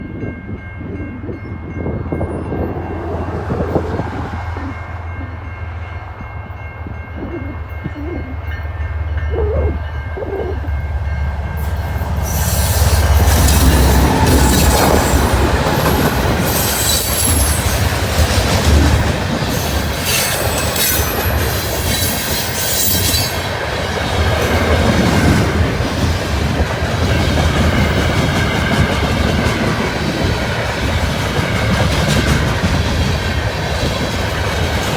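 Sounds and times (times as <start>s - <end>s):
wind buffeting microphone: 0.0s - 22.3s, 23.0s - 34.9s
freight train rumbling past: 0.0s - 34.9s
train wheels clattering and squealing: 11.5s - 34.9s.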